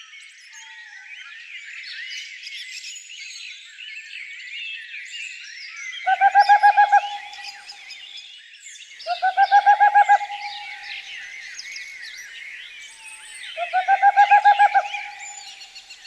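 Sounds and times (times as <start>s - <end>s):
songbirds chirping and warbling: 0.2s - 16.0s
bird call with rapid notes: 6.1s - 7.8s, 9.1s - 11.3s, 13.6s - 15.8s.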